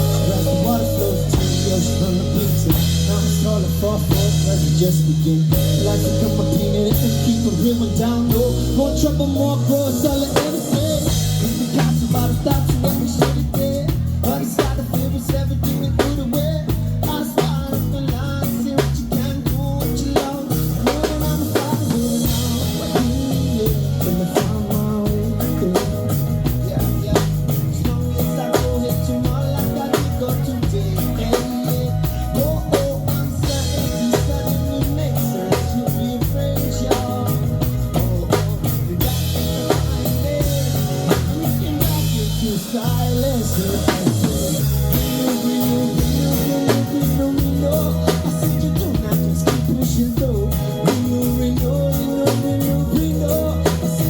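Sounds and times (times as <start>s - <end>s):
bass drum beat: 0.0s - 54.0s
live band playing: 0.0s - 54.0s.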